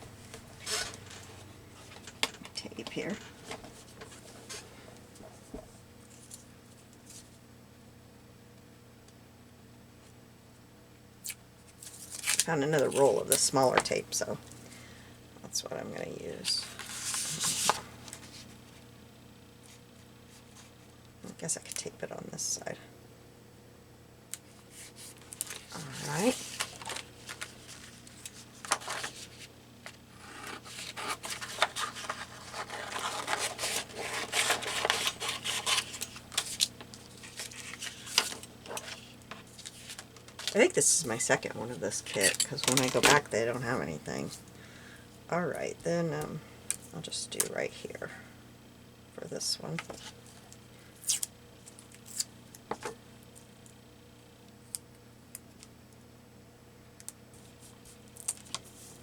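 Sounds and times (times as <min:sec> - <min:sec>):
paper rustling: 0:16.6 - 0:18.5, 0:24.7 - 0:40.7.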